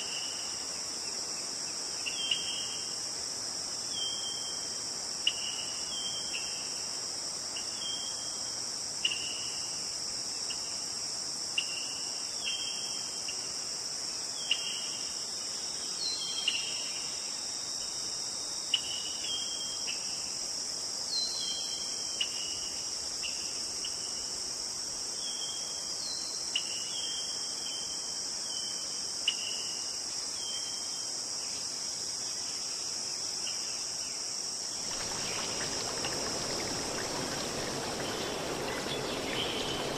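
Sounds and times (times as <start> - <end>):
high-pitched insect chorus: 0.0 - 39.9
short falling bird chirps: 34.8 - 39.9.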